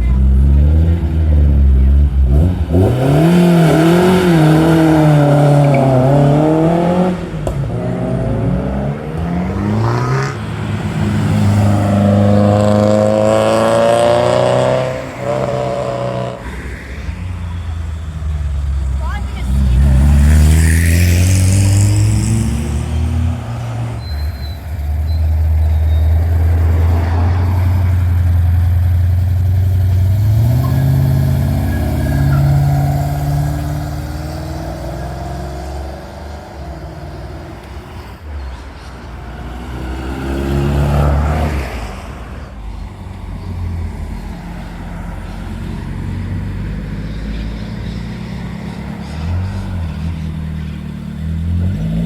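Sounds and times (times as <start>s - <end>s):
car engines pulling away: 0.0s - 52.0s.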